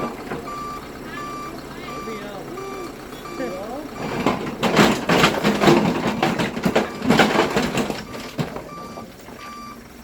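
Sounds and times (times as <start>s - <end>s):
crunching and scraping: 4.0s - 9.5s.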